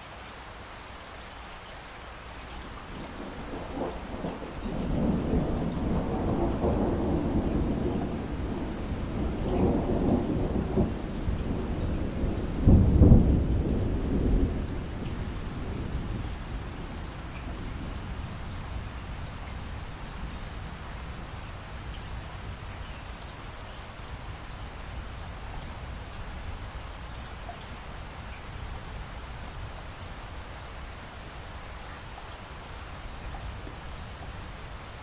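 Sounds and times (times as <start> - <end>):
steady rain: 0.0 - 35.0
rolling thunder: 2.9 - 22.6.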